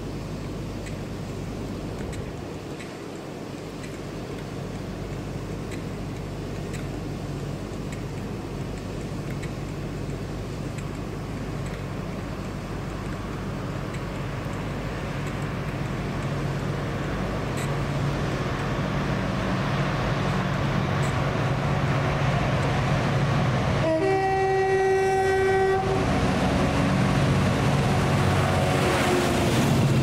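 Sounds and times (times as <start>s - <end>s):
train approaching hum: 0.0s - 30.0s
train horn: 23.7s - 27.0s.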